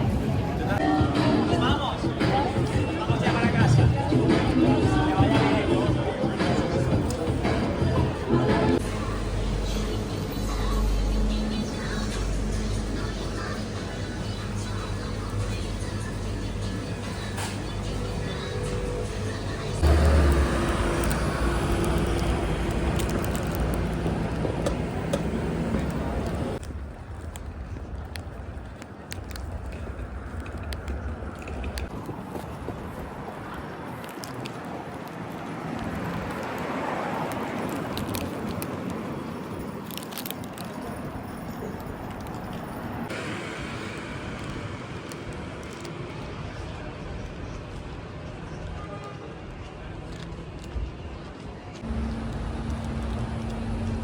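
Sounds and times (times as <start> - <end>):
traffic noise: 0.0 - 54.0
vehicle engine low rumble: 1.8 - 48.4, 50.0 - 54.0
hiss of passing traffic: 8.6 - 26.6, 43.0 - 46.9, 51.8 - 54.0.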